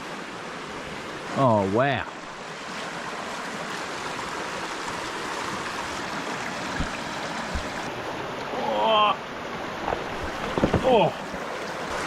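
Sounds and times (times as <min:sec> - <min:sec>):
river rushing over rocks: 0:00.0 - 0:12.0
soft thump: 0:06.8 - 0:07.9.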